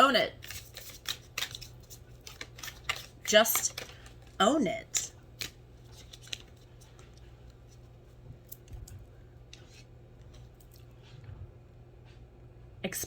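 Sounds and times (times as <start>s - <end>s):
low steady hum: 0.0s - 13.0s
paper rustling: 0.4s - 4.4s, 5.4s - 10.6s.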